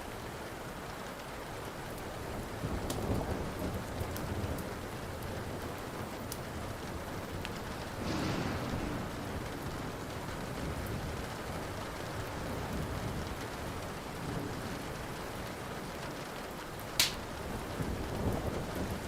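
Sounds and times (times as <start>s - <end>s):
steady rain: 0.0s - 19.0s
rolling thunder: 2.6s - 15.1s, 17.4s - 19.0s
wood fire popping: 7.2s - 10.9s, 17.0s - 17.4s.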